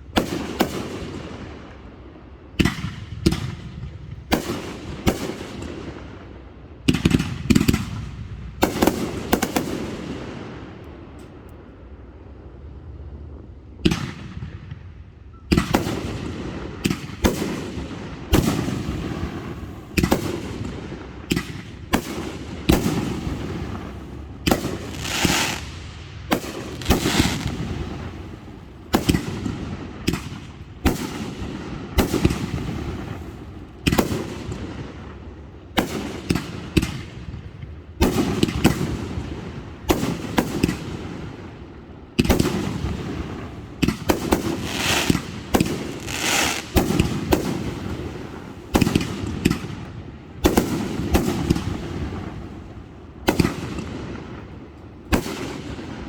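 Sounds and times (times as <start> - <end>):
rising firework hiss: 24.8 - 26.0, 26.7 - 28.7, 44.4 - 45.3, 45.9 - 46.9
firework shell bursts: 44.4 - 45.2.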